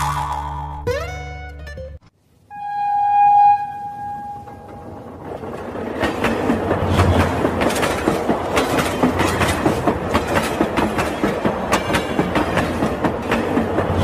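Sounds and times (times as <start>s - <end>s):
low train hum: 2.1s - 14.0s
train wheels clicking: 4.5s - 14.0s.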